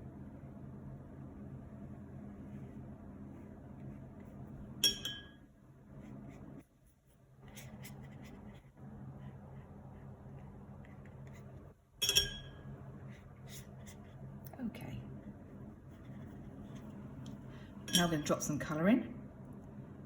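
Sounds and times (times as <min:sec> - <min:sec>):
low steady hum: 0:00.0 - 0:20.0
paintbrush clinking glass jar: 0:04.8 - 0:05.5, 0:12.0 - 0:12.8, 0:17.8 - 0:18.6
brush scratching: 0:06.0 - 0:11.7, 0:15.2 - 0:17.1.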